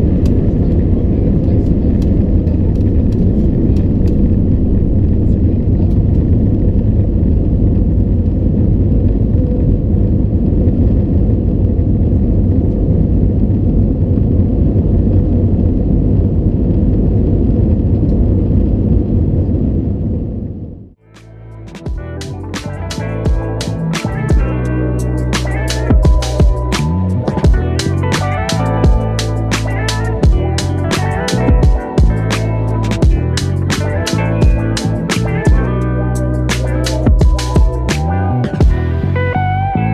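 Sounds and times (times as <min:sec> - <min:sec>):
airliner cabin engine rumble: 0:00.0 - 0:20.8.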